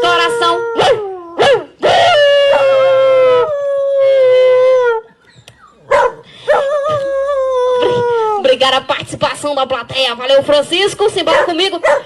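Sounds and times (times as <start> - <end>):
dog howling: 0.0 - 8.5.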